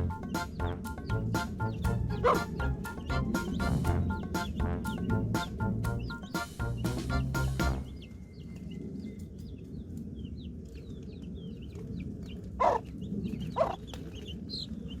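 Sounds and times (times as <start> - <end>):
low steady rumble: 0.0 - 8.1
birds peeping: 0.0 - 15.0.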